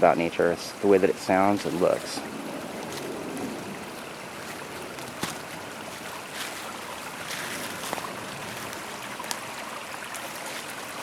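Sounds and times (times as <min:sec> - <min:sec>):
creek water flowing: 0:00.0 - 0:11.0.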